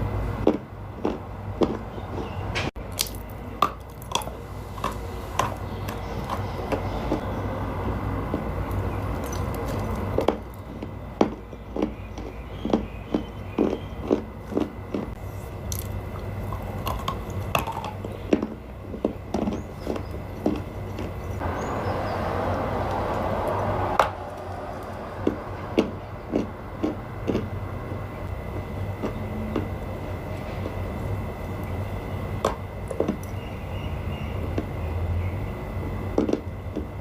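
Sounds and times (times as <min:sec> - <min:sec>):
background hum: 0:00.0 - 0:37.0
dry clay crunching: 0:00.4 - 0:07.4, 0:08.0 - 0:21.5.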